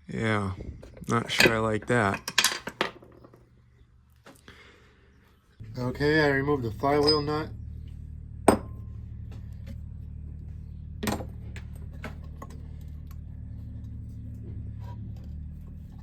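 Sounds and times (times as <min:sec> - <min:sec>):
steady low hum: 0:03.4 - 0:16.0.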